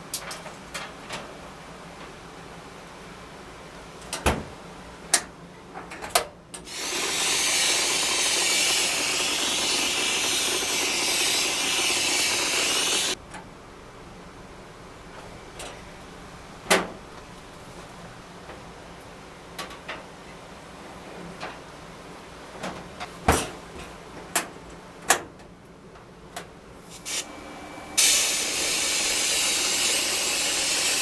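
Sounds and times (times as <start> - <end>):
air spraying hiss: 6.7 - 13.2, 26.9 - 27.3, 28.0 - 31.0.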